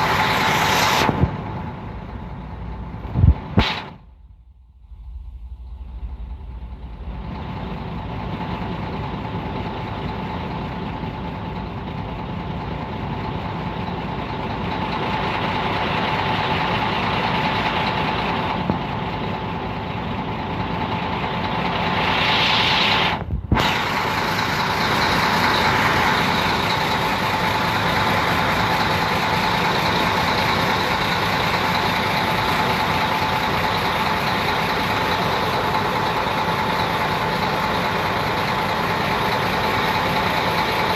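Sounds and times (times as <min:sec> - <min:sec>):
hiss: 0:00.0 - 0:01.3, 0:21.6 - 0:26.7
constant whine: 0:00.0 - 0:40.9
heavy vehicle engine running: 0:00.0 - 0:40.9.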